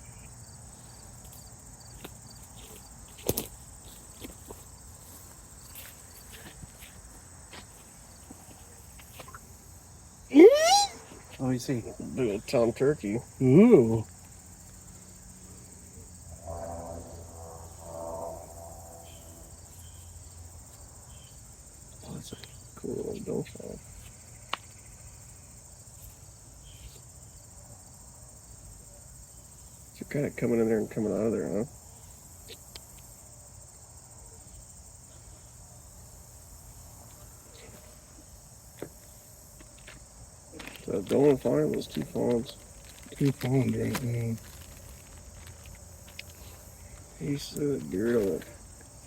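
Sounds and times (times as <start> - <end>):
crickets chirping: 0.0 - 49.0.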